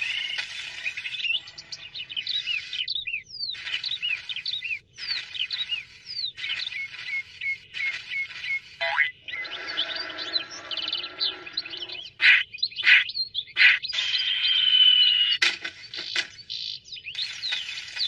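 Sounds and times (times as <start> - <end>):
bird-like cartoon chirps: 0.0 - 18.0
short sharp bursts: 3.5 - 9.0.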